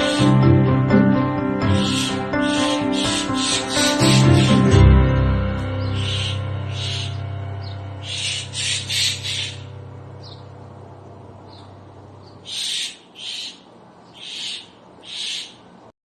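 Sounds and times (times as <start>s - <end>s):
low background music hum: 0.0s - 15.9s
small bird chirping: 1.8s - 4.7s, 5.8s - 10.5s, 11.4s - 15.7s.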